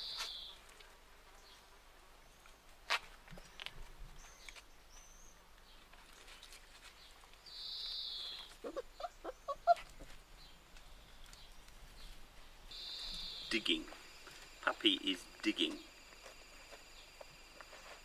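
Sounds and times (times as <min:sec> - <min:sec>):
puppies whimpering and squeaking: 0:08.5 - 0:10.2.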